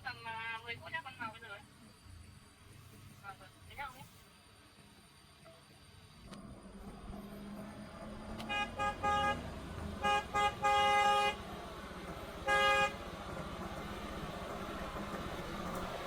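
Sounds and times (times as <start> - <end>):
vehicle horn honking: 8.4 - 11.5, 12.4 - 13.0.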